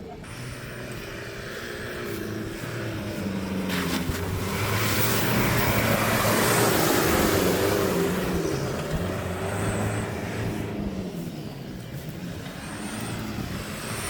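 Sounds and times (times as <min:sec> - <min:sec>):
small tractor engine running: 0:00.0 - 0:14.0.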